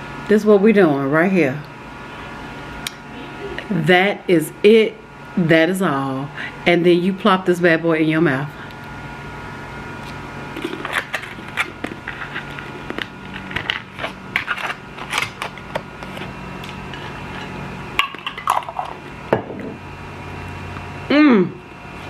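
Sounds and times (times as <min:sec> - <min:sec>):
electric fan humming: 0:00.0 - 0:22.0
cracker crunching while chewed: 0:10.0 - 0:17.5.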